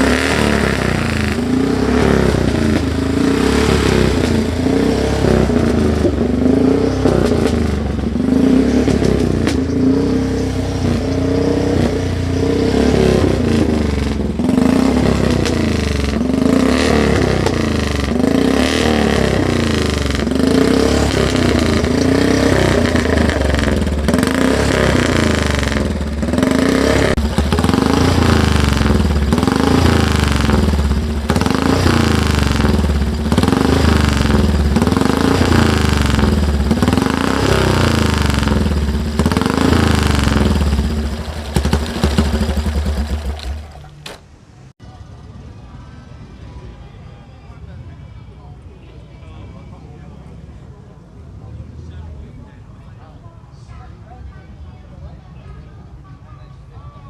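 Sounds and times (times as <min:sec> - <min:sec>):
motorcycle engine revving: 0:00.0 - 0:44.7.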